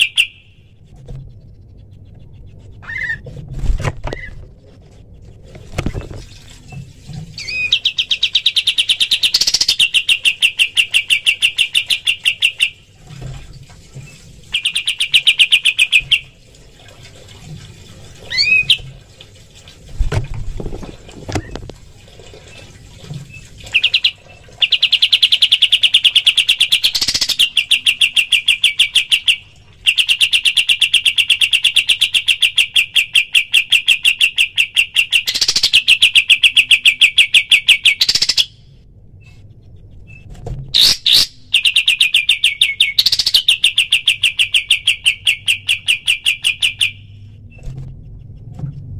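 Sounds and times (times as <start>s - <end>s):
upward-sweeping bird whistles: 2.8s - 3.2s.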